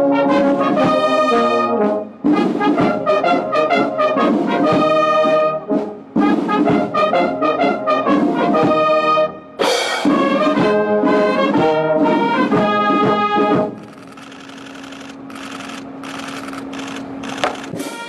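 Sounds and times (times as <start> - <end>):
military brass band playing: 0.0 - 13.8, 17.6 - 18.0.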